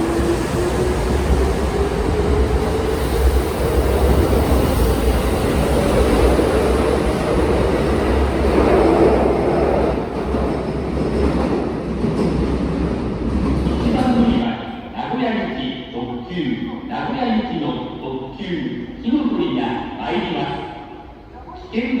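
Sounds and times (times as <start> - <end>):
train wheels rumbling on rails: 0.0 - 14.5.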